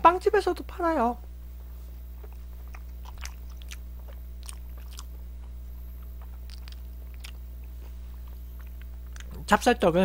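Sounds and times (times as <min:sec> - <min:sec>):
low electrical hum: 0:00.0 - 0:10.0
chewing soft rice cake: 0:01.6 - 0:09.5.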